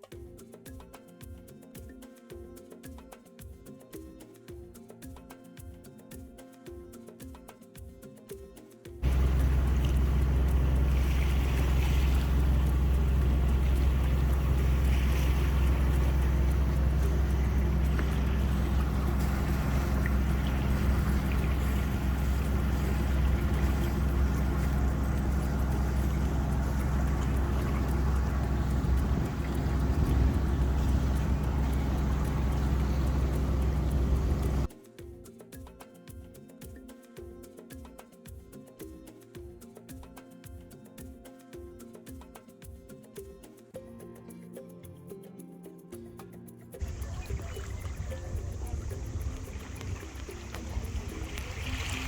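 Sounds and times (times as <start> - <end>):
diesel engine droning: 9.0 - 34.7, 46.8 - 52.0.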